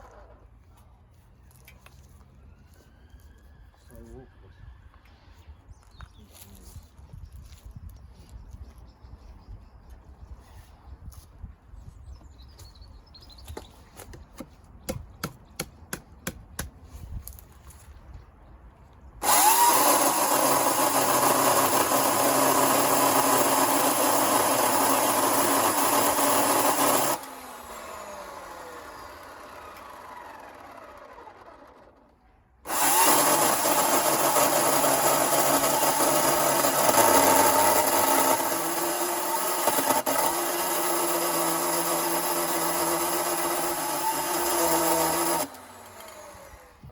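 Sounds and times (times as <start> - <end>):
chainsaw cutting wood: 19.2 - 32.1, 32.7 - 46.9.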